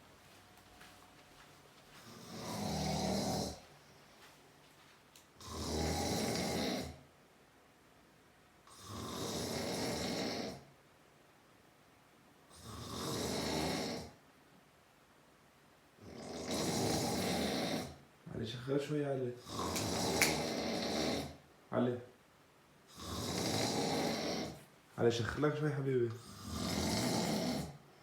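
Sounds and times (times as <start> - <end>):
man snoring loudly: 2.0 - 3.6, 5.4 - 7.0, 8.7 - 10.7, 12.5 - 14.2, 16.0 - 18.0, 19.4 - 21.4, 22.9 - 24.6, 26.2 - 27.8.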